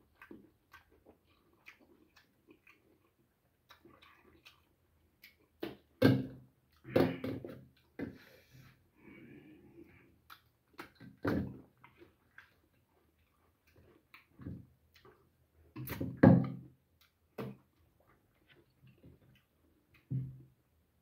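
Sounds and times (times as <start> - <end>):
wet chewing: 0.0 - 6.0, 9.8 - 16.0
lip smacks: 10.2 - 11.2.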